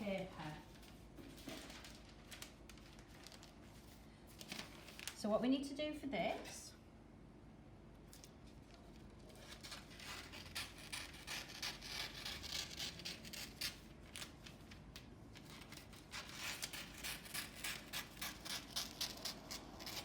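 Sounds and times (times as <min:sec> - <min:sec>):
scissors cutting paper: 0:09.3 - 0:13.8, 0:15.5 - 0:20.0.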